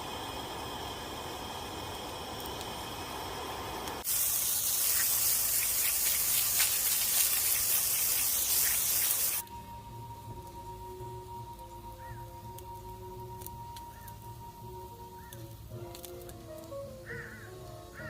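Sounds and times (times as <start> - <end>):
fish sizzling over fire: 0.0 - 18.0.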